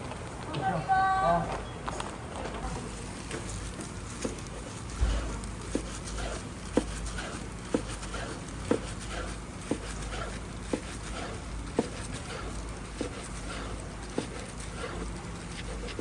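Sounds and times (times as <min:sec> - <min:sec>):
low background hum: 0:00.0 - 0:16.0
knife cutting on cutting board: 0:03.5 - 0:16.0.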